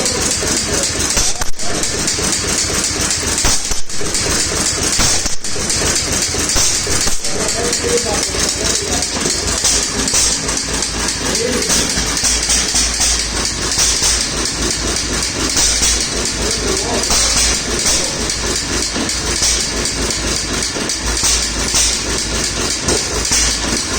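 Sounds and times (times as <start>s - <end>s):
stationary engine running: 0.0s - 23.9s.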